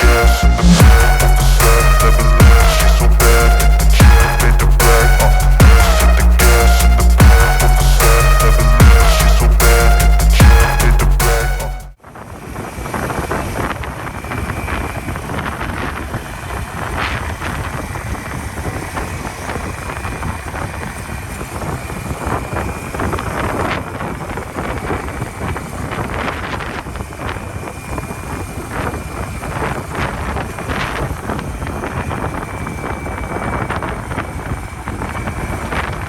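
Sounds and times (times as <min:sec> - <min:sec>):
motorbike engine: 0:00.0 - 0:36.0
road noise: 0:00.0 - 0:36.0
wind buffeting microphone: 0:12.0 - 0:36.0.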